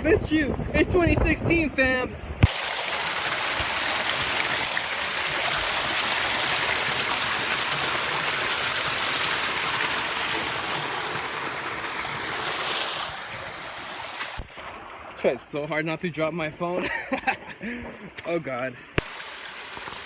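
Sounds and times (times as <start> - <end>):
wind blowing on microphone: 0.0 - 2.5.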